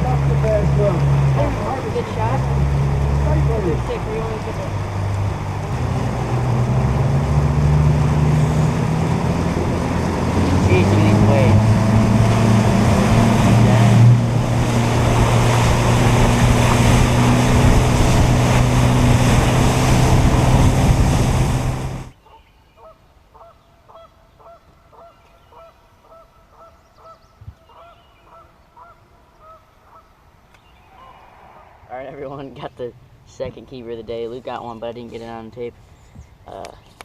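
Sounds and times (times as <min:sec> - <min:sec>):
outboard motor running: 0:00.0 - 0:22.1
water rushing: 0:00.0 - 0:22.1
wind: 0:00.0 - 0:37.0
geese honking: 0:22.8 - 0:30.1.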